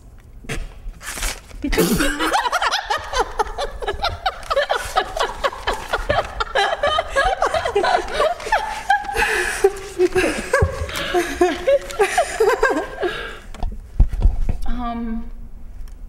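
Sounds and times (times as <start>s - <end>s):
people laughing: 1.7s - 13.5s.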